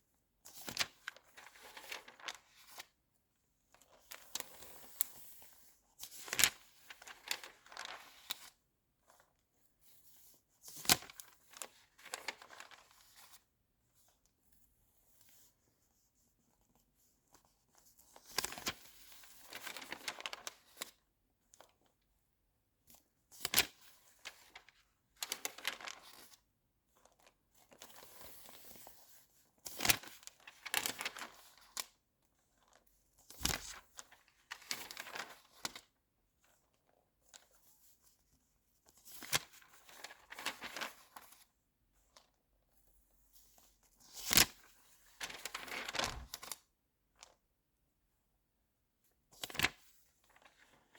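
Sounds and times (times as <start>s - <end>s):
magazine pages turning: 0.6s - 2.9s, 6.2s - 8.5s, 10.9s - 13.4s, 19.4s - 20.9s, 24.3s - 26.4s, 29.8s - 31.8s, 33.4s - 35.8s, 39.2s - 41.4s, 44.2s - 46.6s, 49.4s - 50.9s.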